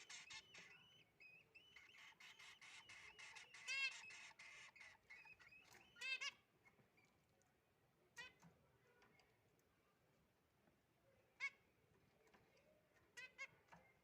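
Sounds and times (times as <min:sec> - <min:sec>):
nestlings chirping: 0:00.0 - 0:06.4.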